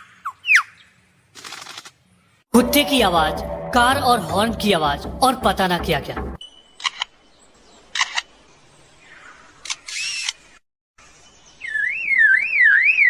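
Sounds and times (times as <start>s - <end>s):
bird mimicking shutter clicks: 9.6s - 10.4s.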